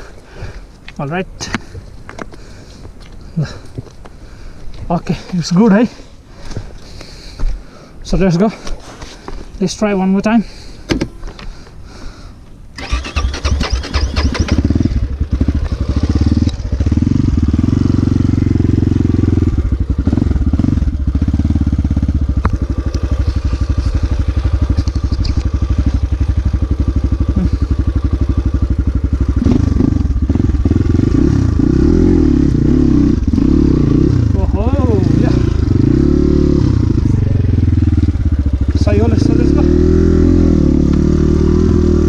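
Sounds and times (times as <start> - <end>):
motorcycle engine revving: 12.8 - 42.0.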